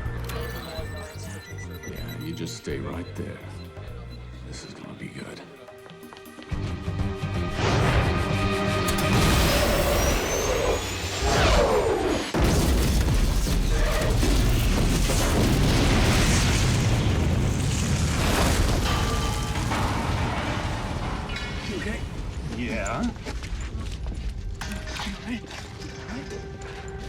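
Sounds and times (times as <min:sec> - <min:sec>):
dramatic orchestral score: 0:02.2 - 0:12.4, 0:18.8 - 0:27.0
explosion blast with low rumble: 0:07.6 - 0:24.0.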